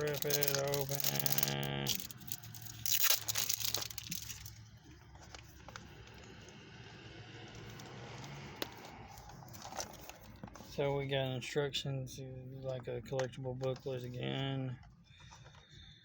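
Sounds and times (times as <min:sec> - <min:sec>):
packaging crinkling and tearing: 0:00.0 - 0:04.6
rustling of handled contents: 0:00.0 - 0:06.6, 0:07.5 - 0:11.1, 0:12.6 - 0:16.0.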